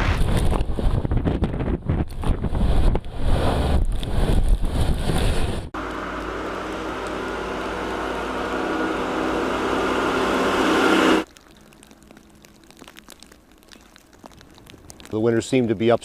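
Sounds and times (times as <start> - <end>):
wind buffeting microphone: 0.0 - 5.7
vehicle engine running: 5.8 - 11.2.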